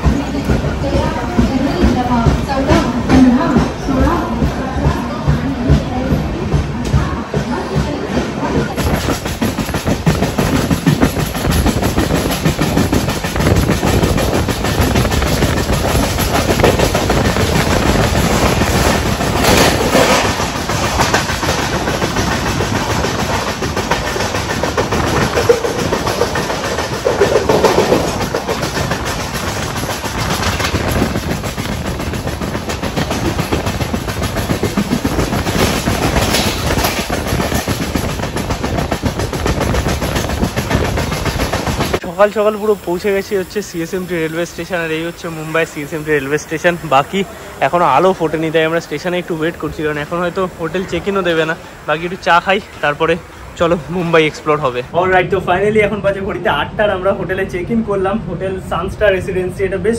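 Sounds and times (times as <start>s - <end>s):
train rumbling on track: 0.0s - 59.9s
wheels clattering over rail joints: 0.0s - 59.9s
sharp clack: 8.8s - 42.0s.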